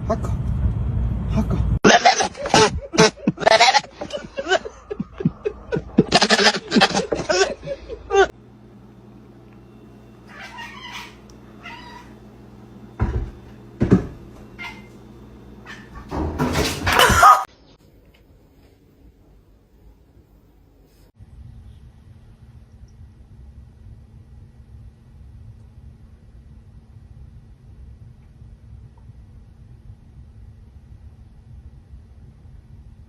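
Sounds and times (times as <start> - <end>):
steady low hum: 0.0 - 33.0
cat meowing: 10.3 - 12.1.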